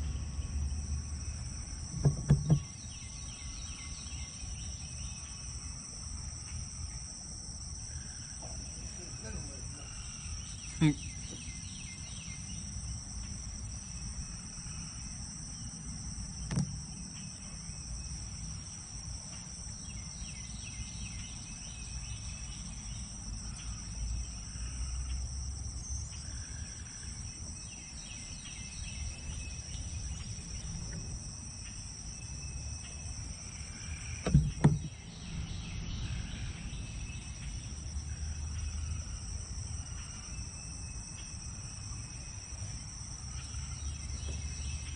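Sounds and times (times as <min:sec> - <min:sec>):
insects droning: 0:00.0 - 0:44.9
sharp knocks: 0:01.9 - 0:02.7, 0:34.2 - 0:35.0.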